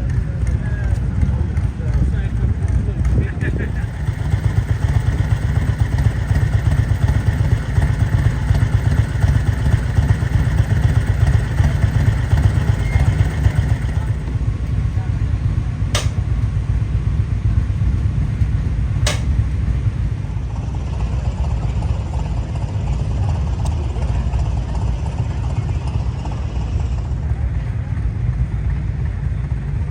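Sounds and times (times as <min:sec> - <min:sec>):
low engine rumble: 0:00.0 - 0:29.9
sharp clicks: 0:19.0 - 0:19.4.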